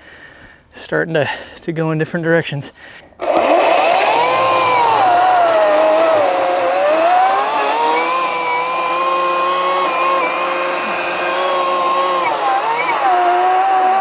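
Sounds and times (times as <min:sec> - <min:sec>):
electric chainsaw cutting wood: 0:03.2 - 0:14.0.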